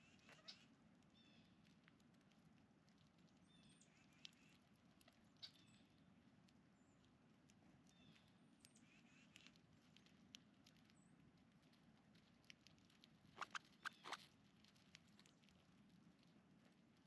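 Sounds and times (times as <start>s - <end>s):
songbirds chirping: 7.8s - 9.2s.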